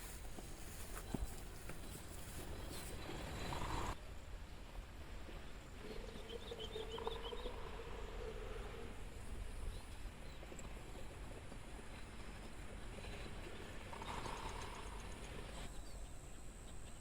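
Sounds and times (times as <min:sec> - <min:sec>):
bird chirping: 0:05.8 - 0:08.3
insect drone: 0:05.8 - 0:16.1.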